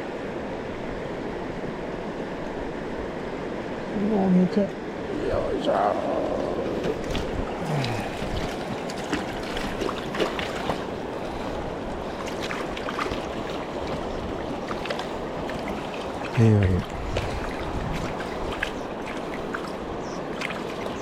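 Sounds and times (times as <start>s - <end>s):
river water rushing: 0.0s - 21.0s
small splashes and ticks: 6.8s - 21.0s.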